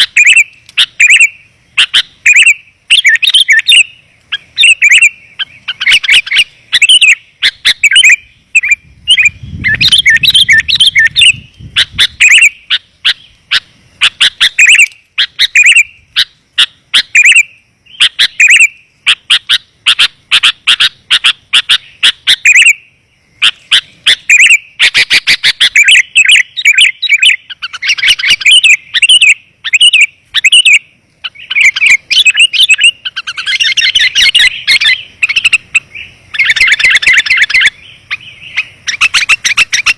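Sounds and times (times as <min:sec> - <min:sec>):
bulbuls chirping: 0:00.0 - 0:39.9.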